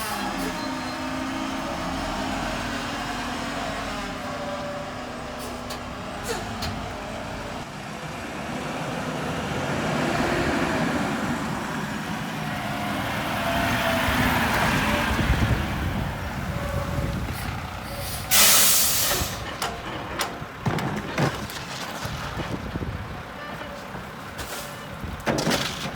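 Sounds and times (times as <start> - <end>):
air brakes hissing: 5.4 - 6.6, 17.2 - 19.5
garbage truck engine running: 10.9 - 25.9.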